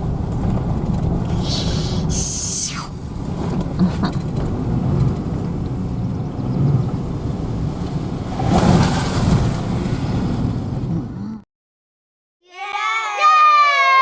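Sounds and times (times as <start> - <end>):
truck engine and road rumble: 0.0 - 11.4.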